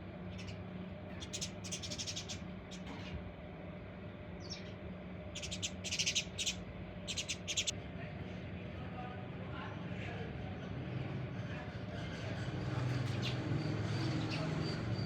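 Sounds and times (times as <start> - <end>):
steady low hum: 0.0 - 13.0
small birds chirping: 0.2 - 3.3, 4.3 - 7.7, 13.0 - 15.0.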